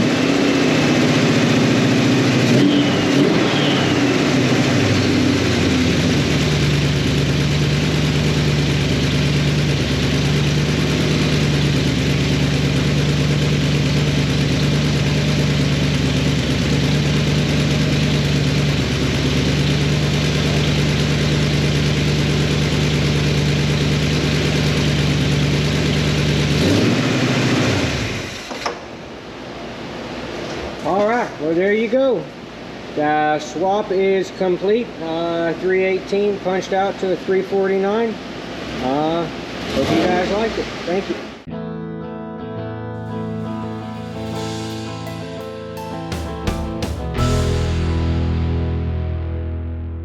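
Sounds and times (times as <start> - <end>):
car engine idling: 0.0 - 26.7, 45.8 - 49.1.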